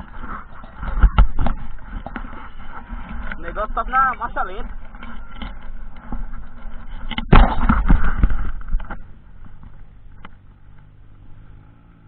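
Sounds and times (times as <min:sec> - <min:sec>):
popping exhaust: 0:00.0 - 0:12.0
motorcycle engine revving: 0:04.6 - 0:12.0.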